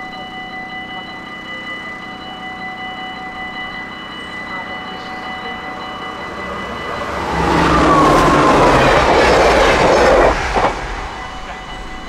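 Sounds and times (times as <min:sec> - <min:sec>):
crossing warning bell ringing: 0:00.0 - 0:12.0
train passing: 0:03.0 - 0:12.0.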